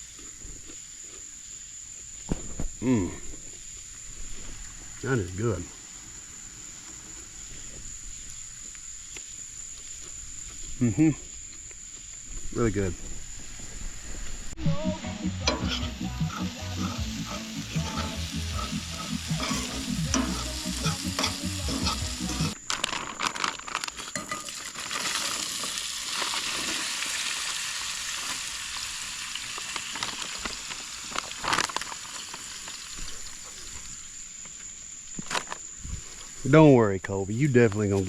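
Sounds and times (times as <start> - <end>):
food sizzling in a pan: 14.6 - 22.6, 24.2 - 34.3.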